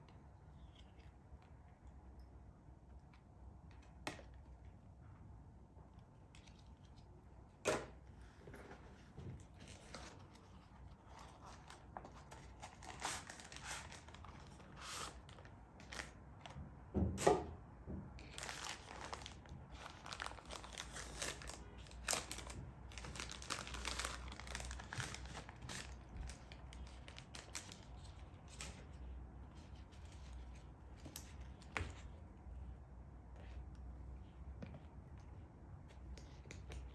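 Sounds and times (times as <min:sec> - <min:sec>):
packaging crinkling and tearing: 0:09.6 - 0:16.2, 0:18.2 - 0:28.9.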